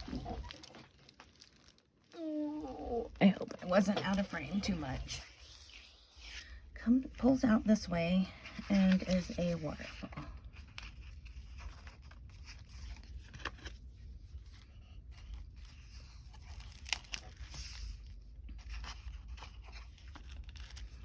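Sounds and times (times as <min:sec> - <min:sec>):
sharp paper crackle: 0:00.0 - 0:02.7, 0:15.2 - 0:21.0
paper and card rustling: 0:00.0 - 0:21.0.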